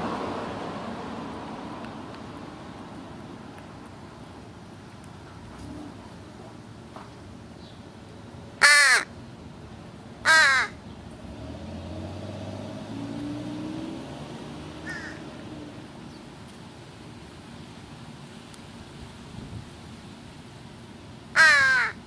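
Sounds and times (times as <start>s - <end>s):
crow cawing: 8.6s - 9.1s, 10.2s - 10.8s, 14.8s - 15.3s, 21.4s - 22.0s.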